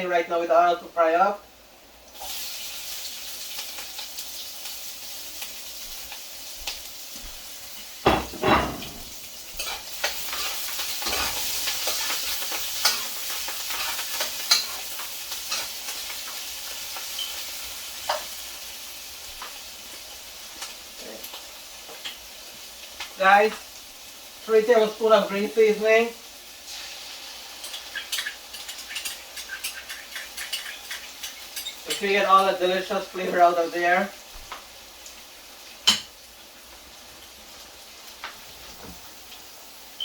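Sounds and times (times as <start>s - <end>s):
vegetables sizzling in hot oil: 0.9s - 40.0s.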